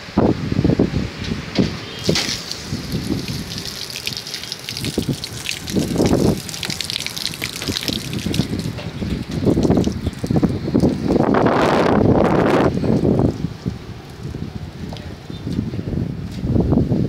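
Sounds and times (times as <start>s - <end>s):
wind buffeting microphone: 0.0s - 17.0s
water gushing and splashing: 1.9s - 12.4s.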